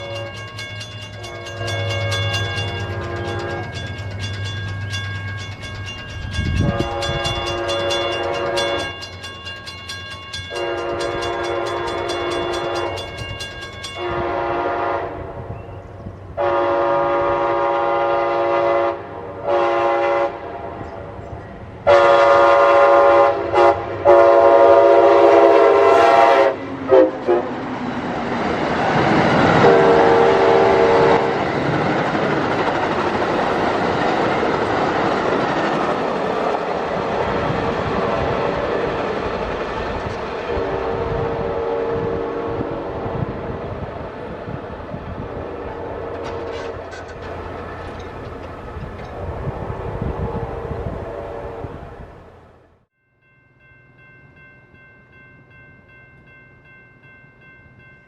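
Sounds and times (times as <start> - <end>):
train air horn blasts: 0.0 - 3.9, 6.4 - 9.0, 10.5 - 13.2, 14.0 - 15.7, 16.4 - 20.9, 21.8 - 27.6, 29.5 - 31.5, 40.4 - 43.7, 45.2 - 47.2, 49.1 - 52.0
train wheels on rails: 0.0 - 20.2, 20.8 - 51.9.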